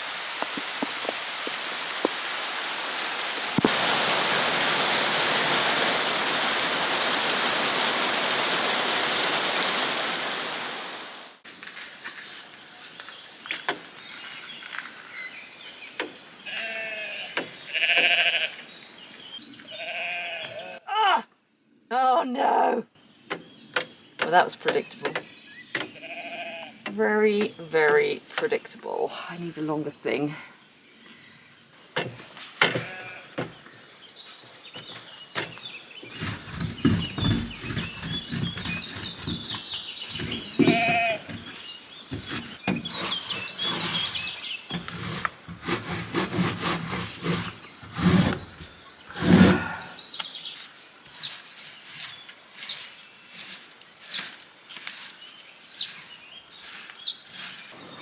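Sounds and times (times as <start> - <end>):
rustling: 11.4 - 15.5, 36.0 - 49.9, 50.5 - 58.0
birds singing: 11.5 - 20.8, 21.6 - 58.0
sheep-like bleating calls: 16.5 - 18.6, 19.8 - 21.0, 26.0 - 26.8.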